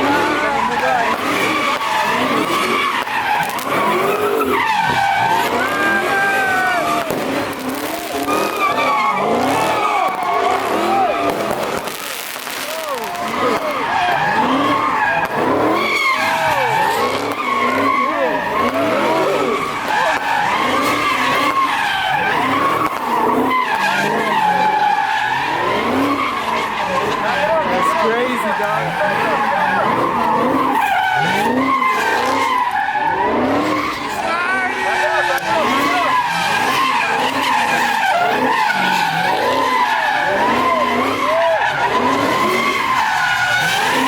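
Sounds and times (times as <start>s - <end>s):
car engine revving: 0.0s - 44.0s
tires squealing: 0.0s - 44.0s.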